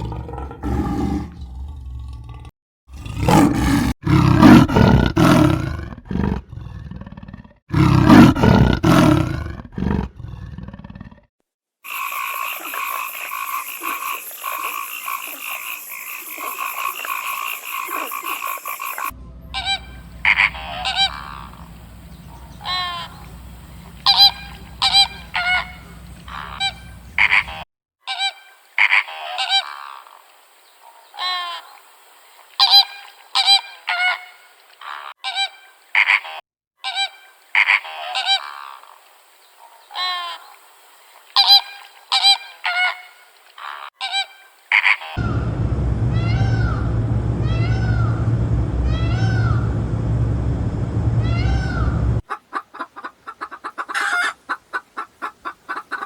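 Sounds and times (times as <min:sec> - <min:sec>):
animal calls: 0:11.9 - 0:30.2, 0:51.2 - 0:56.0.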